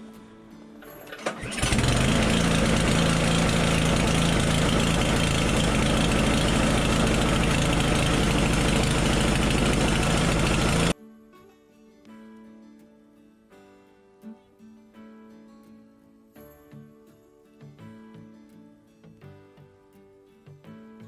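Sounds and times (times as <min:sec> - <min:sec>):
snowblower engine running: 0:01.0 - 0:11.0.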